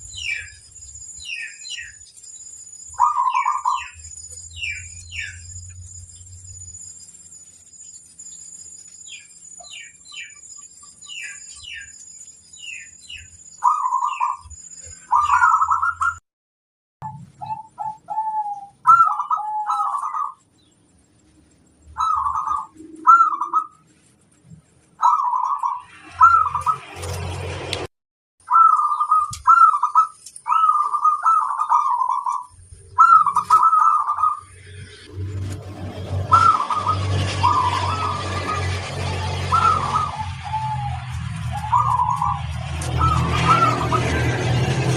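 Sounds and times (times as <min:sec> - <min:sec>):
small birds chirping: 0:00.0 - 0:16.2, 0:17.0 - 0:26.9, 0:28.4 - 0:35.1, 0:36.3 - 0:44.2
dove cooing: 0:03.0 - 0:04.0, 0:15.1 - 0:16.2, 0:17.4 - 0:20.4, 0:22.0 - 0:23.7, 0:25.0 - 0:26.8, 0:28.5 - 0:32.4, 0:33.0 - 0:34.5, 0:36.2 - 0:44.5.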